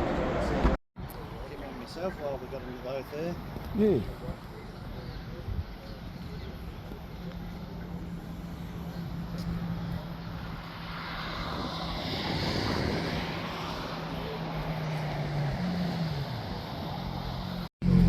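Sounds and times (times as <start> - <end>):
passing vehicle: 5.3 - 18.0.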